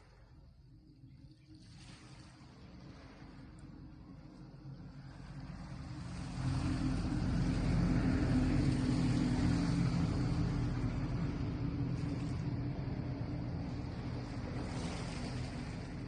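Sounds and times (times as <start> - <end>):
engine throbbing: 4.9 - 16.0.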